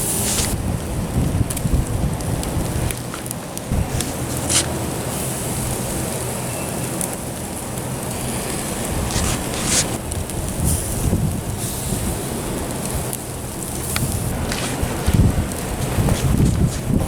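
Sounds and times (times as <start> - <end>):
wind on microphone: 0.0 - 3.0, 3.7 - 4.6, 8.1 - 12.2, 13.5 - 17.0
wood fire crackling: 0.0 - 17.0.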